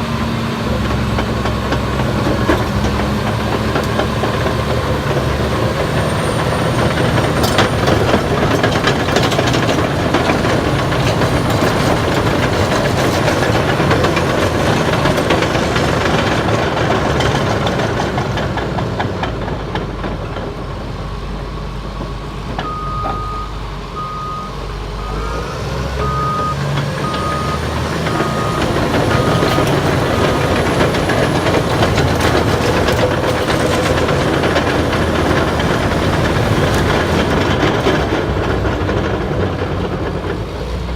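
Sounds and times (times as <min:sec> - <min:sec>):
steel tracks clanking: 0:00.0 - 0:21.1, 0:25.1 - 0:40.9
dozer engine working: 0:00.0 - 0:40.9
reverse alarm beeping: 0:22.6 - 0:30.6.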